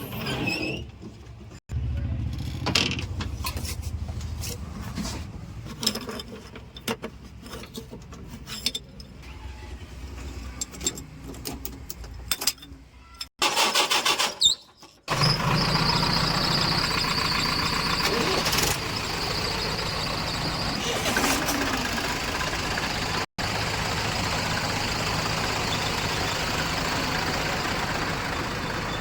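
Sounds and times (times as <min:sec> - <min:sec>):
metal clanks and knocks: 0:04.6 - 0:09.2
diesel machinery engine running: 0:15.1 - 0:29.0
loud engine running steadily: 0:15.1 - 0:29.0.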